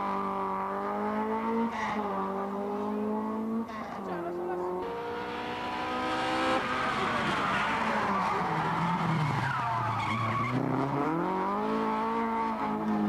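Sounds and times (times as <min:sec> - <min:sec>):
rally car engine revving: 0:00.0 - 0:13.0
tyres skidding and squealing: 0:03.6 - 0:13.0.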